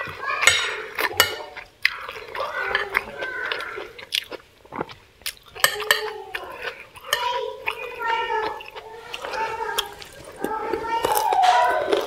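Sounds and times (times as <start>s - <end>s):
person chewing: 0.0s - 12.0s
cutlery clicking on plate: 0.4s - 1.6s, 5.5s - 7.4s.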